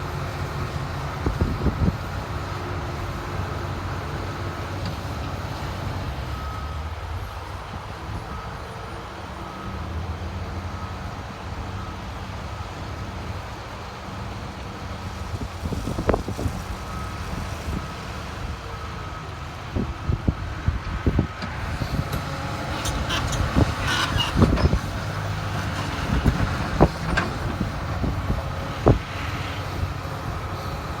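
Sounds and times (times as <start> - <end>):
excavator diesel engine running: 0.0 - 31.0
scraping squeal: 21.6 - 27.8.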